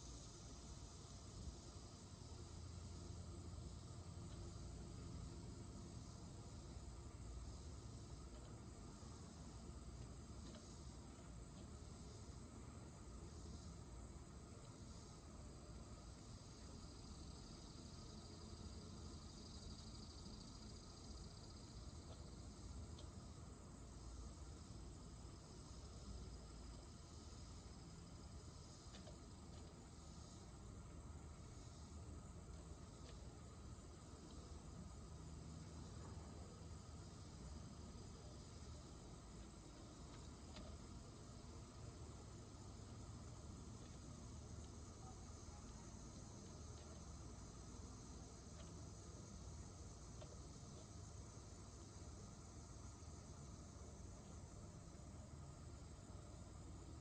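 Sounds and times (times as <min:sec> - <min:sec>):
faint insect trill: 0:00.0 - 0:57.0
soft ticks: 0:22.9 - 0:23.2, 0:28.9 - 0:29.8, 0:39.4 - 0:40.9, 0:50.1 - 0:51.0.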